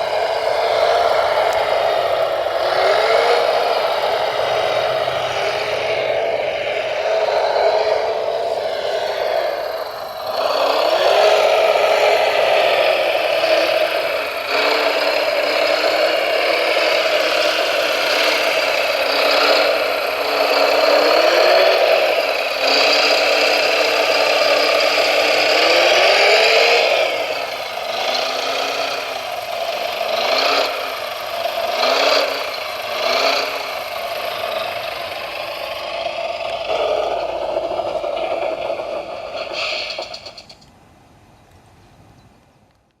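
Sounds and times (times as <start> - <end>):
electric motors whining: 0.0 - 40.6
model machine rattling: 6.6 - 40.7.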